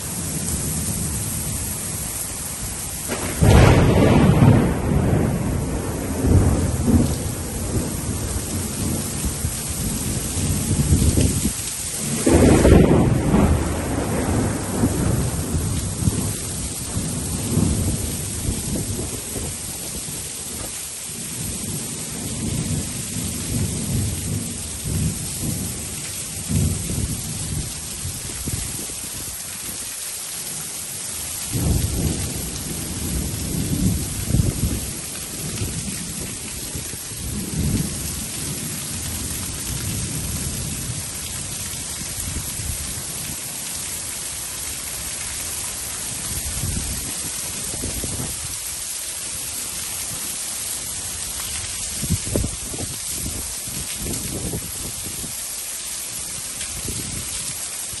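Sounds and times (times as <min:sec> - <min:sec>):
heavy rain: 0:00.0 - 0:58.0
thunder rumbling: 0:03.1 - 0:28.9, 0:31.5 - 0:43.4, 0:52.0 - 0:54.9.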